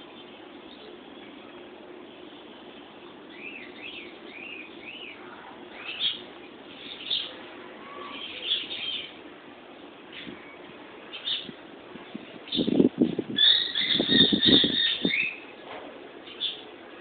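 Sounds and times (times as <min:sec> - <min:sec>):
lovebirds chirping: 0:02.8 - 0:11.6, 0:12.4 - 0:15.5.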